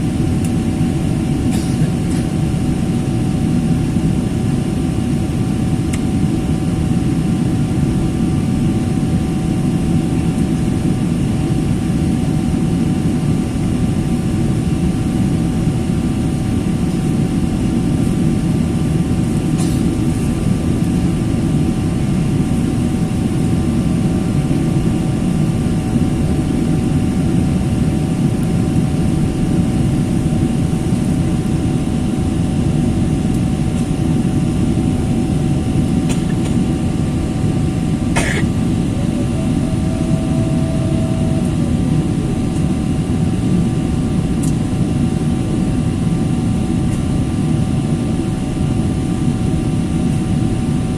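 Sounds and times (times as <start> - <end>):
airliner cabin engine rumble: 0.0 - 50.9
faint steady hum: 15.9 - 50.9.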